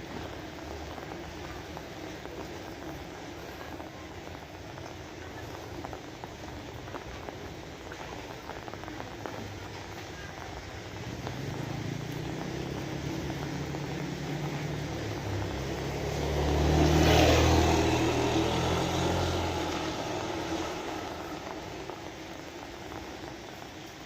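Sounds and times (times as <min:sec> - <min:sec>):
steady rain hissing: 0:00.0 - 0:24.0
vehicle engine driving past: 0:11.0 - 0:22.0.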